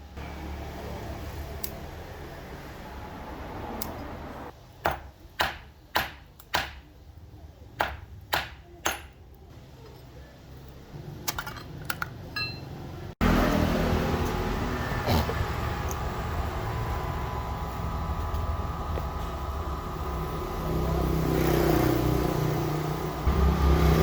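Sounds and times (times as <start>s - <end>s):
loud steady rumble: 13.2s - 24.0s.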